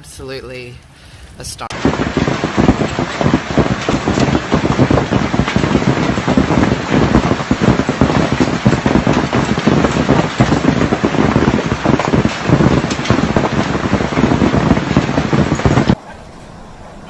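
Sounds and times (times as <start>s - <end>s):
hailstones clattering: 1.7s - 16.0s.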